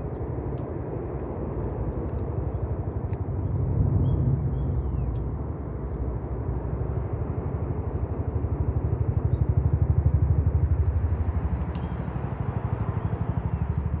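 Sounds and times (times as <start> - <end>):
campfire crackles: 0.1 - 3.4
low pulsing rumble: 1.8 - 7.4.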